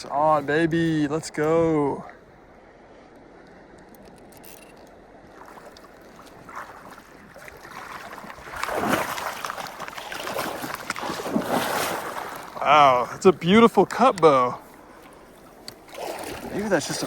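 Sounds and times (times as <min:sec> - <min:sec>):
stream water running: 0:00.0 - 0:17.0
fish splashing in water: 0:05.3 - 0:13.1, 0:14.6 - 0:17.0.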